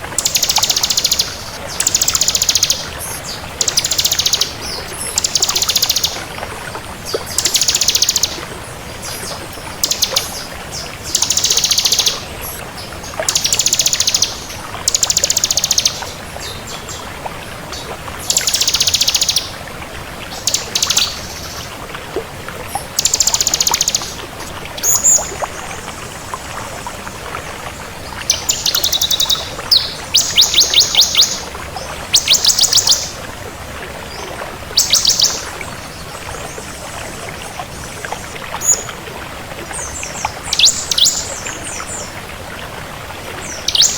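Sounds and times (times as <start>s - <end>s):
bird singing trilled phrases: 0.2s - 6.2s, 7.3s - 8.4s, 9.0s - 12.6s, 13.3s - 16.6s, 18.3s - 19.5s, 20.4s - 21.6s, 23.0s - 24.2s, 24.8s - 25.3s, 28.3s - 31.5s, 32.1s - 33.1s, 34.8s - 35.5s, 40.1s - 42.1s, 43.4s - 43.9s.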